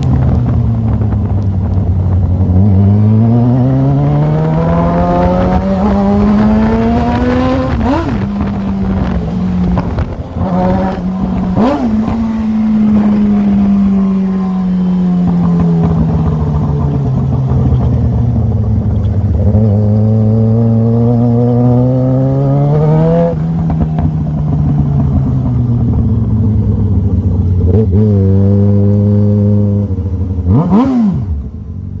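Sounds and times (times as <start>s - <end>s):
gear changes: 0.0s - 32.0s
motorcycle engine revving: 0.0s - 32.0s.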